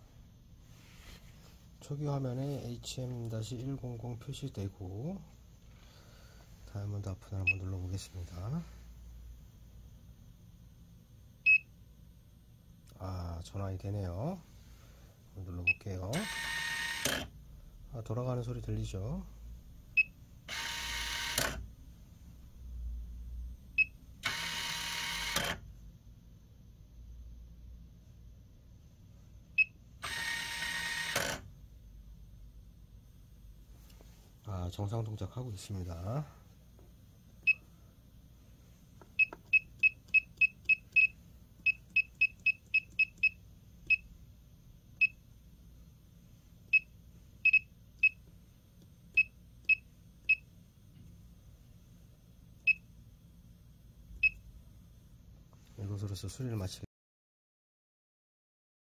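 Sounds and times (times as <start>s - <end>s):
motor-driven mechanism whirring: 16.1s - 17.3s, 20.5s - 21.6s, 24.2s - 25.6s, 30.0s - 31.5s.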